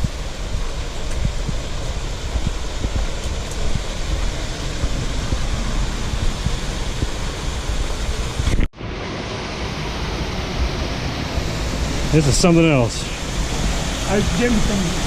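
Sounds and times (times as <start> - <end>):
wind buffeting the microphone: 0.0 - 8.7
waterfall rushing: 0.0 - 15.0.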